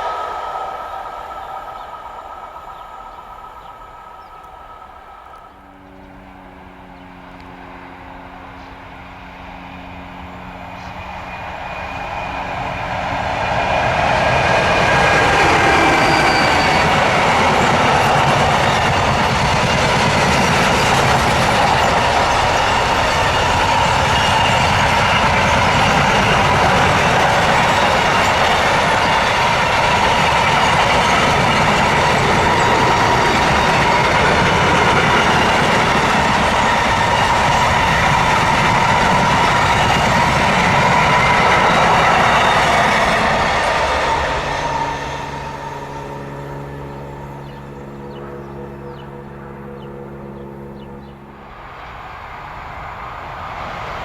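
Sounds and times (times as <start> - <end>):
train running past: 0.0 - 54.0
train wheel clatter: 10.6 - 48.2.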